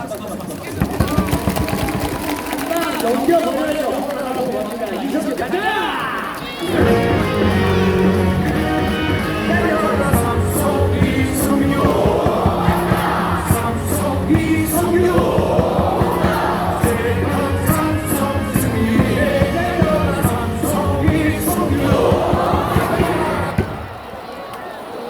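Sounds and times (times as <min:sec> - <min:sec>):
cheer song over loudspeakers: 0:05.4 - 0:25.0
crowd singing along: 0:06.4 - 0:25.0.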